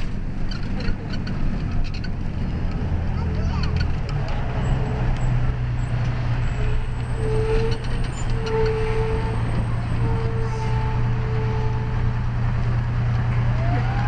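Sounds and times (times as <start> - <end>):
road noise: 0.0 - 14.0
fire engine drone: 3.9 - 14.0.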